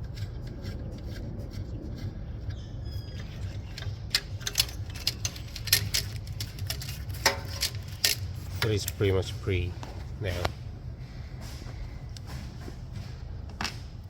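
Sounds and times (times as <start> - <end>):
low steady hum: 0.0 - 14.0
metal parts being handled: 2.0 - 10.6
brief squeak: 2.5 - 3.9
hand tool clicking on nut: 3.5 - 9.0.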